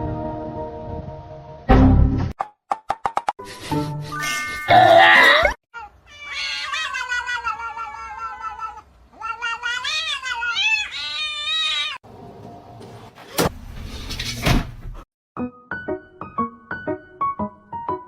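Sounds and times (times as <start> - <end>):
cat meowing: 4.7 - 12.0.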